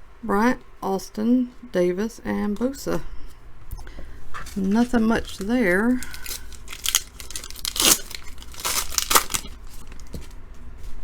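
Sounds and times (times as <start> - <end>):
card pack wrapper tearing: 4.5 - 10.2.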